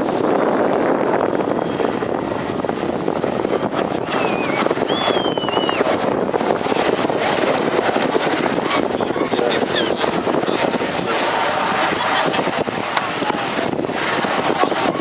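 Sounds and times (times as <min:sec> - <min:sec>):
helicopter engines and rotor: 0:00.0 - 0:15.0
wind buffeting microphone: 0:00.0 - 0:15.0
thin wavering whistle-like call: 0:04.2 - 0:05.9.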